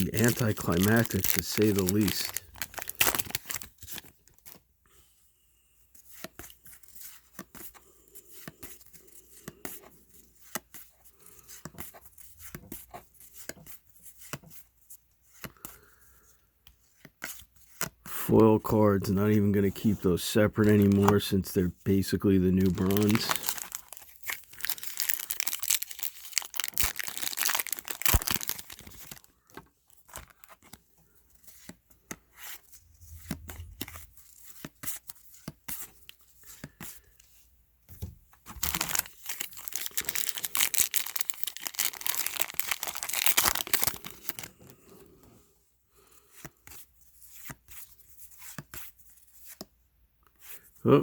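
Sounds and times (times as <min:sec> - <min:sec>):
wrappers tearing and crinkling: 0:00.0 - 0:04.1, 0:22.5 - 0:29.3, 0:38.6 - 0:44.5
wrapper rustling: 0:00.0 - 0:04.4, 0:22.0 - 0:29.3, 0:38.5 - 0:44.6.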